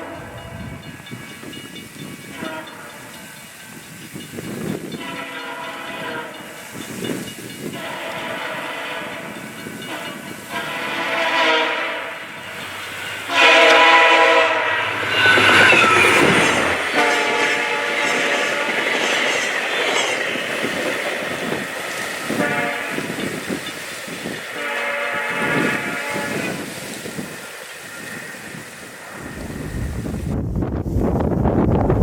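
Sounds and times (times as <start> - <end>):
train air horn blasts: 0.0 - 0.9, 2.2 - 3.4, 5.0 - 6.7, 7.6 - 19.3, 22.2 - 27.3
train rumble: 0.0 - 32.0.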